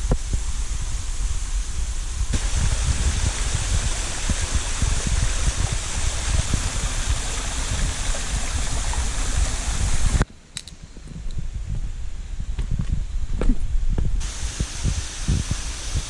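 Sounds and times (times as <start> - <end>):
waterfall rushing: 2.2 - 10.2, 14.2 - 16.0.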